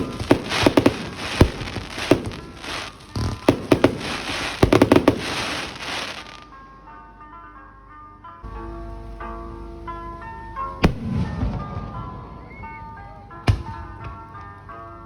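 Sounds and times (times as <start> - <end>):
fireworks bangs and crackling: 0.0 - 6.5, 10.8 - 14.6
soft music with bell-like notes: 0.0 - 15.0.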